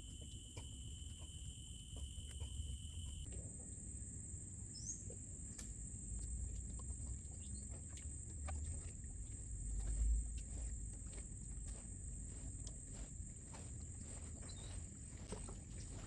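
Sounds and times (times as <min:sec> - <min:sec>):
insects buzzing: 0:00.0 - 0:03.3.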